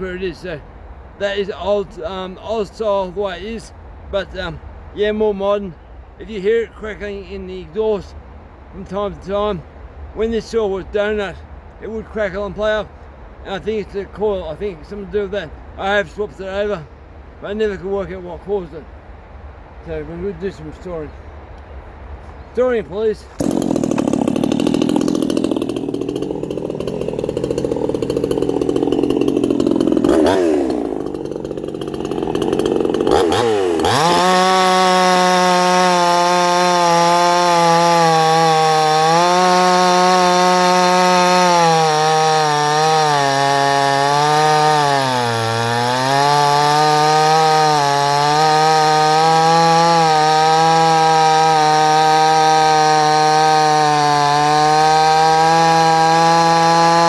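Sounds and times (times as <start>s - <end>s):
chainsaw cutting wood: 23.4s - 57.0s.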